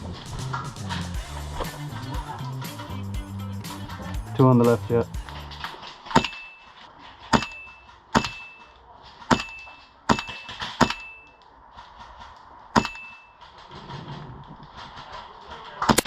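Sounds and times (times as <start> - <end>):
short metallic ring: 6.2 - 6.8, 7.4 - 11.3, 12.8 - 13.4.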